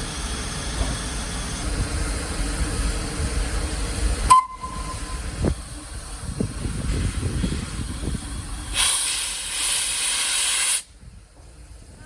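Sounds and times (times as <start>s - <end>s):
train rumbling with hiss: 0.0s - 12.0s
brief beep: 4.3s - 5.3s.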